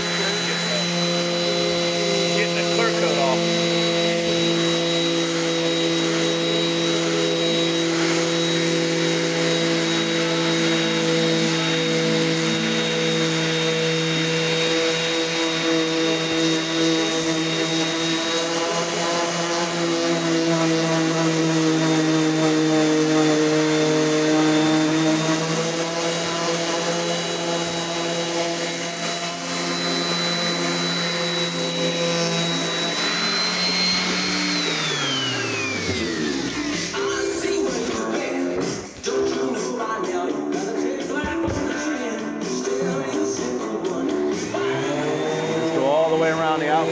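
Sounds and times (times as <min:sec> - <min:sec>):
electric sander humming: 0:00.0 - 0:39.6, 0:41.2 - 0:46.9.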